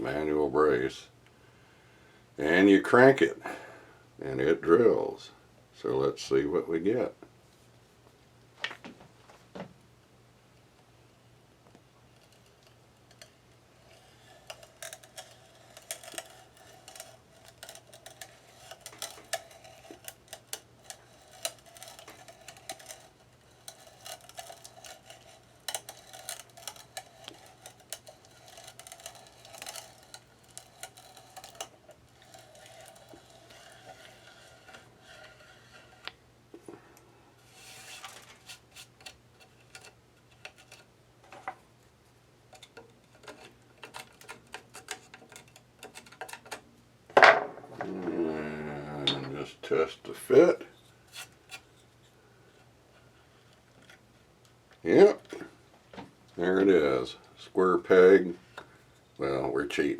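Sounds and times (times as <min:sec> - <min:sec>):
wood creaking: 0:12.2 - 0:36.7, 0:47.2 - 0:50.0.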